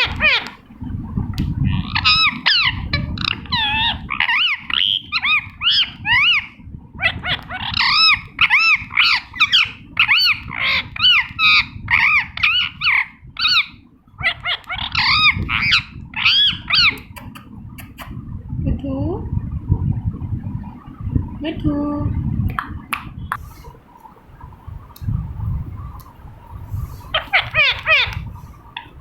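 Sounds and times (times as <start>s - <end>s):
parakeet squawking: 0.0s - 0.7s, 1.6s - 17.3s, 27.0s - 29.0s.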